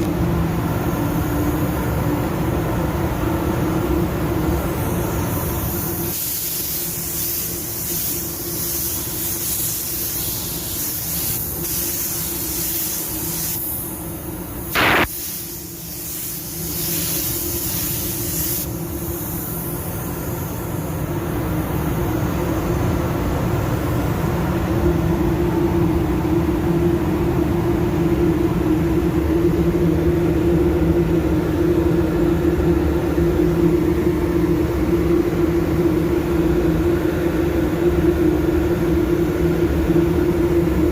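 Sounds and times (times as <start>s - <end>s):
air spray gun hissing: 3.7s - 22.8s
machine hum: 13.0s - 16.8s.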